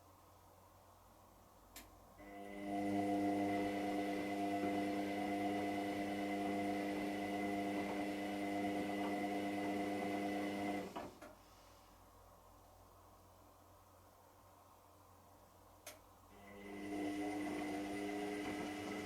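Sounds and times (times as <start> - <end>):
washing machine humming: 2.2 - 11.2, 16.3 - 19.0.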